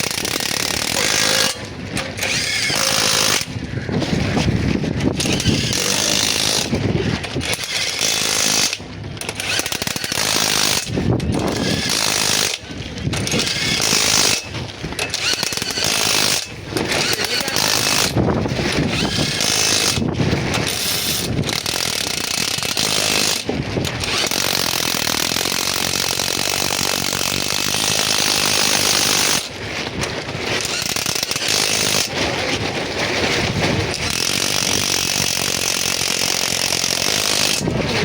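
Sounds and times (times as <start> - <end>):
boat engine clattering: 0.0 - 38.0.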